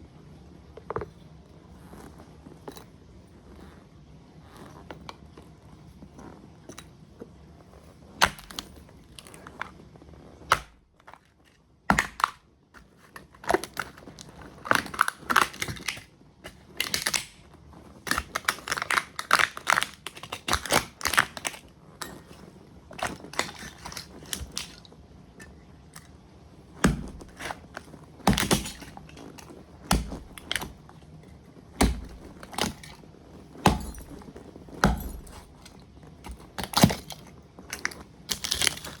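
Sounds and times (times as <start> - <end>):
plastic cracking and crunching: 10.5 - 39.0
heavy stomping thuds: 26.8 - 27.6, 28.3 - 30.9, 31.7 - 33.0, 33.6 - 35.7.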